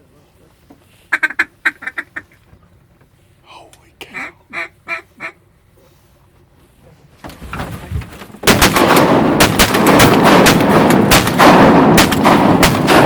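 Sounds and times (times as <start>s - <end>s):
shotgun blasts: 8.4s - 13.0s.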